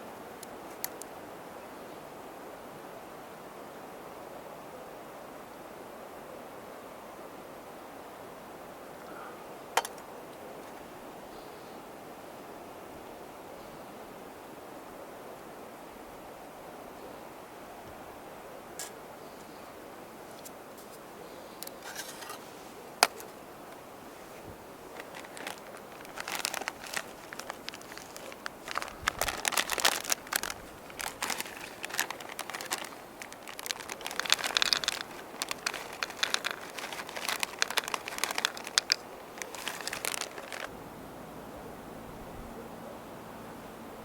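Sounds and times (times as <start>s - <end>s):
crinkling and crackling handling: 0.4s - 1.1s, 21.6s - 40.7s.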